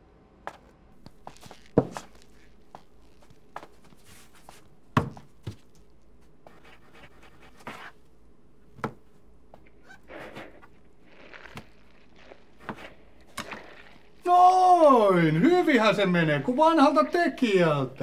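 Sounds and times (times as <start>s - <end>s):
dough kneaded by hand: 0.5s - 8.0s, 8.7s - 15.4s
soft rustling: 1.0s - 8.1s.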